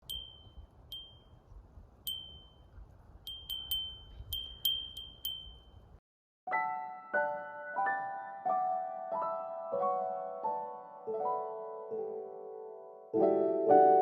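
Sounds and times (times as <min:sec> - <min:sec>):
wind chime ringing: 0:00.0 - 0:01.4, 0:02.1 - 0:02.7, 0:03.3 - 0:06.0.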